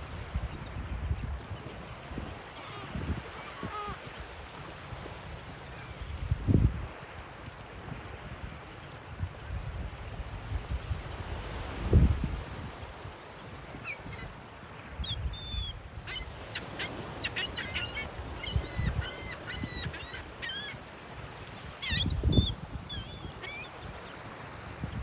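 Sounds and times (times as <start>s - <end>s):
seagulls calling: 2.3s - 4.4s, 13.7s - 14.4s, 15.0s - 24.2s.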